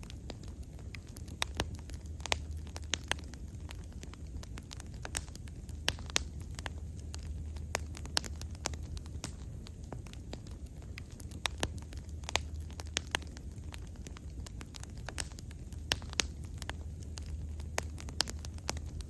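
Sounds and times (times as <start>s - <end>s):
bonfire crackling: 0.0s - 19.0s.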